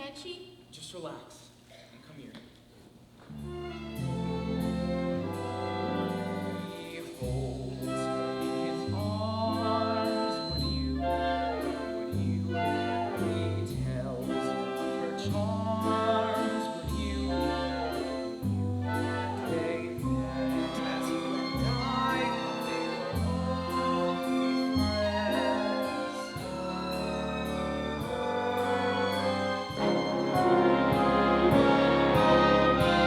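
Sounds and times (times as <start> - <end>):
orchestral music: 3.4 - 33.0
voices singing: 5.3 - 33.0
slow bass notes: 16.8 - 33.0.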